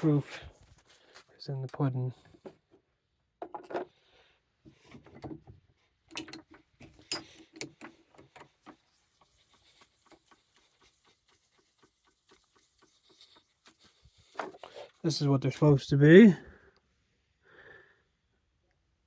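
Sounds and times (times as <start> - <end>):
small parts and tools knocking: 2.3 - 3.9, 5.0 - 14.8.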